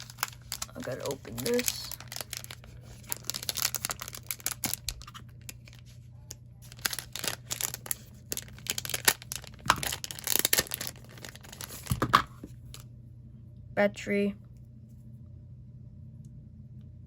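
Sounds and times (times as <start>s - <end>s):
tearing and crinkling: 0.0s - 12.8s.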